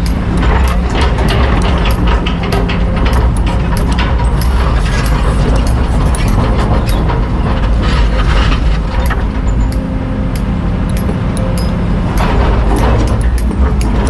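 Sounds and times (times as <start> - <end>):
bucket clanks and rattles: 0.0 - 10.4
excavator diesel engine under load: 0.0 - 14.0.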